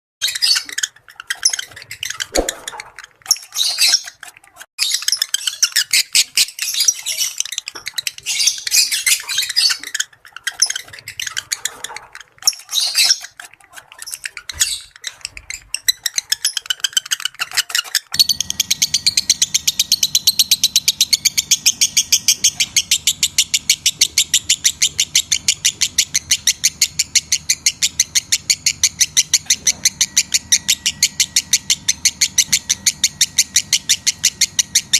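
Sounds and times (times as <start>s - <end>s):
repeated bird chirps: 0.2s - 4.2s, 15.8s - 34.9s
lovebirds chattering: 0.2s - 34.9s.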